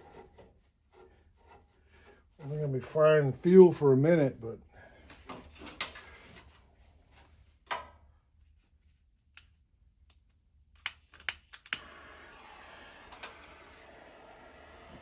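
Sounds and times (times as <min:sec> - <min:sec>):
faint steady hiss: 0:10.8 - 0:15.0.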